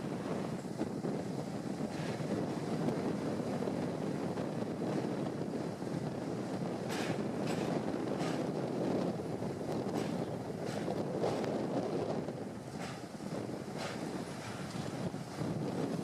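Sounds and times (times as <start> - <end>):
wind buffeting microphone: 0.0 - 16.0
train rumbling across bridge: 6.8 - 15.2.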